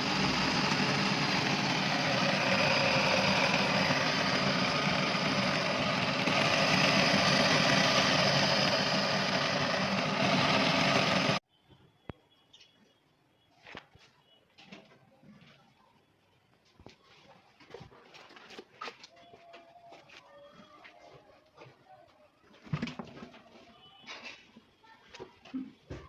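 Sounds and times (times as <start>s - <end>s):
electric motors droning: 0.0s - 11.4s.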